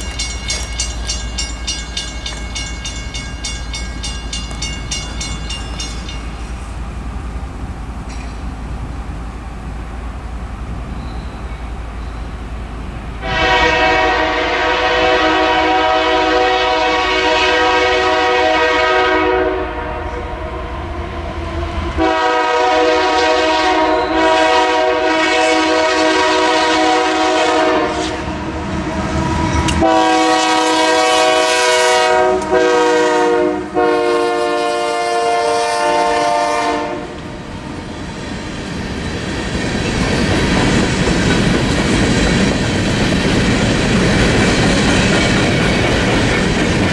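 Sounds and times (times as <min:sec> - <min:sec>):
train rumble: 0:00.0 - 0:46.9
train wheel noise: 0:00.0 - 0:46.9
locomotive air horn blasts: 0:13.2 - 0:20.8, 0:22.0 - 0:28.5, 0:29.8 - 0:37.4.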